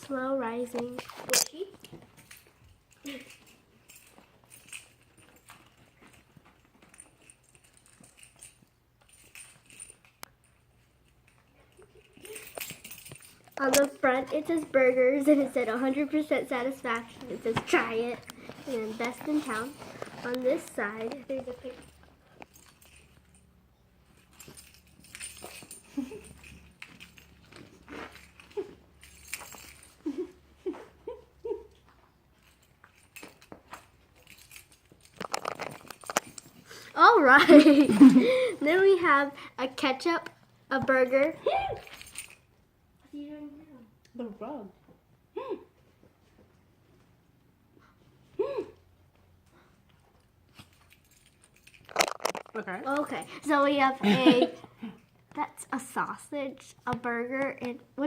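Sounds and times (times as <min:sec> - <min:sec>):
packaging rustling and clicking: 0:51.7 - 0:52.6.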